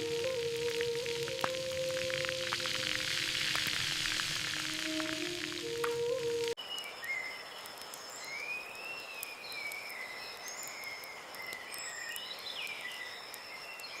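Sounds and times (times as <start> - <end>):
wavering whistle-like tone: 0.0 - 6.6.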